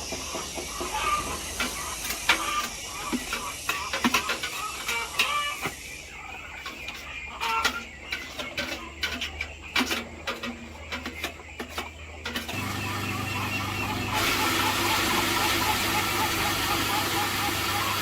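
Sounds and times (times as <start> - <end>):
engine-like hum: 12.5 - 18.0.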